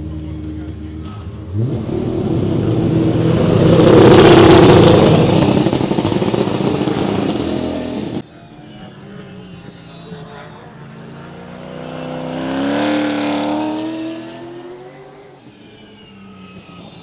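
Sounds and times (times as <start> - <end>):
race car passing at speed: 1.5 - 8.2, 10.8 - 15.4.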